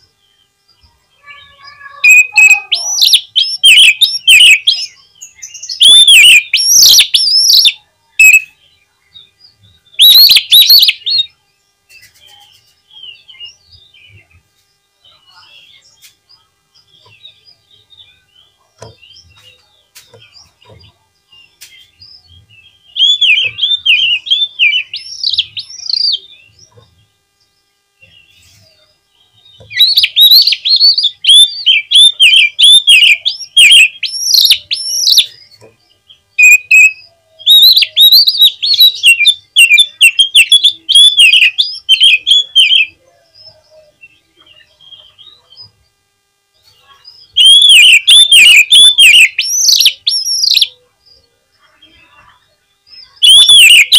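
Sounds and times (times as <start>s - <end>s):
bird singing whistled notes: 0.0s - 11.4s, 14.9s - 26.6s, 27.4s - 45.8s, 47.0s - 53.9s
faint bird chirps and clicks: 11.8s - 12.9s, 15.3s - 17.4s, 18.7s - 22.0s, 29.5s - 42.7s.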